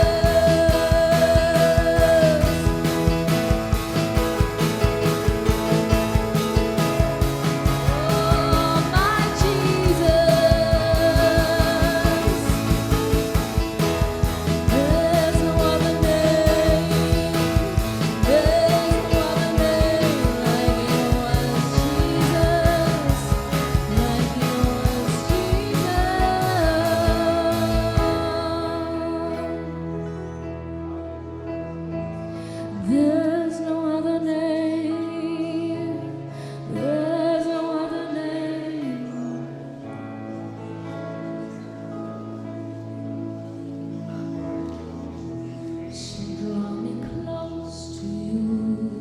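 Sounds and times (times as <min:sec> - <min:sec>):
woman singing: 0:00.0 - 0:03.8, 0:07.5 - 0:29.9, 0:32.7 - 0:40.0, 0:45.8 - 0:49.0
keyboard and guitar: 0:00.0 - 0:49.0
drum beat: 0:00.2 - 0:28.2
wordless vocal melody: 0:05.1 - 0:31.1.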